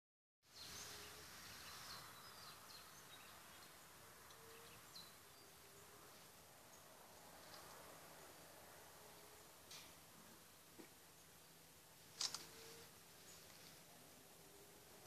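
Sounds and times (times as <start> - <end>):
faint steady hiss: 0.5 - 15.0
faint high bird chirps: 4.3 - 6.3.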